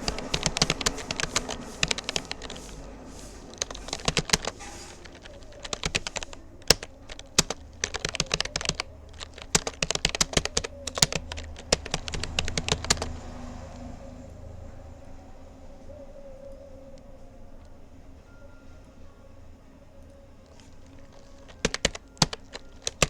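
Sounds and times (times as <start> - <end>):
keyboard typing clicks: 0.0 - 2.9, 3.5 - 13.1, 20.6 - 23.0.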